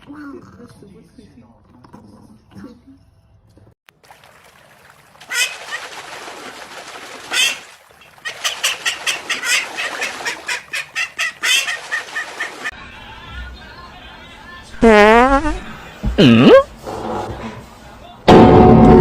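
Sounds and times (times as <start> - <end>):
chicken squawking: 5.2 - 12.7.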